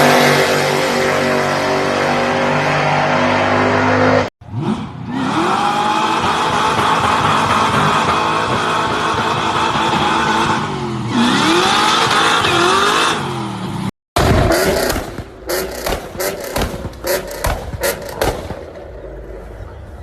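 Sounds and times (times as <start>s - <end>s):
car engine revving: 0.0s - 19.6s
sharp cracks and knocks: 14.2s - 18.8s.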